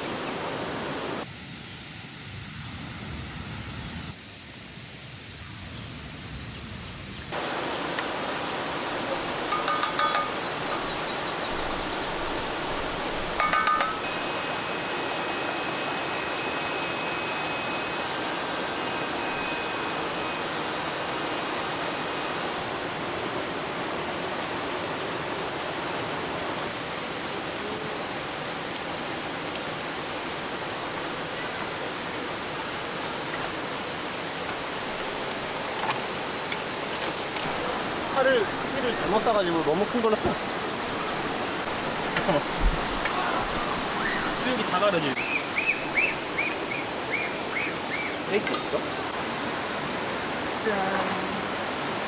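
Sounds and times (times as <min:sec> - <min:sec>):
mountain stream rushing: 0:00.0 - 0:01.3, 0:07.3 - 0:52.0.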